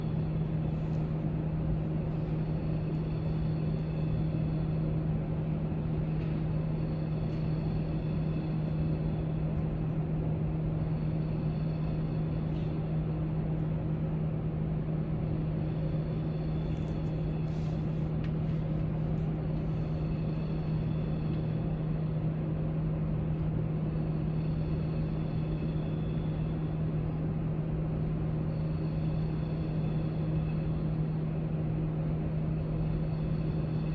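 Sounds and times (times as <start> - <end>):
low room hum: 0.0 - 33.9.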